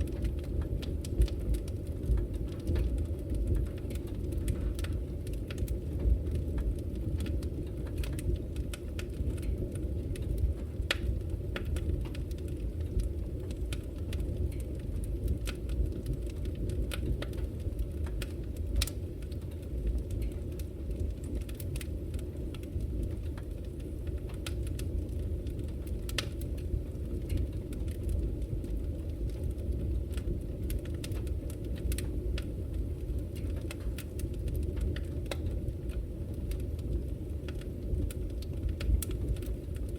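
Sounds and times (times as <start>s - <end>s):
fire crackles and pops: 0.0s - 39.9s
fire rumbling in fireplace: 0.0s - 39.9s.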